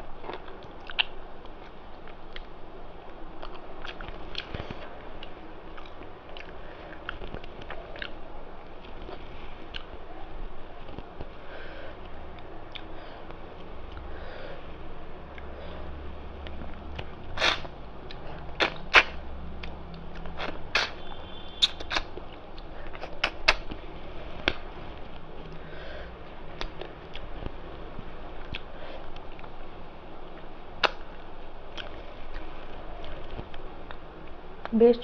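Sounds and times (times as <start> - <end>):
chewing clicks and smacks: 0.3 - 2.5, 3.4 - 8.2, 16.4 - 21.0, 21.6 - 23.8, 28.4 - 29.5, 31.7 - 34.4.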